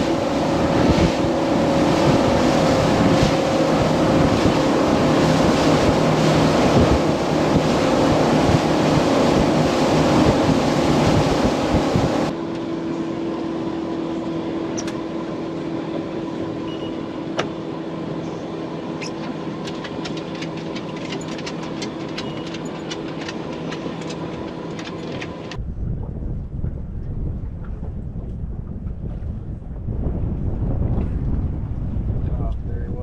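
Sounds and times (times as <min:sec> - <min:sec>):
boat engine idling: 0:00.0 - 0:25.6
wind and water rushing: 0:00.0 - 0:33.0.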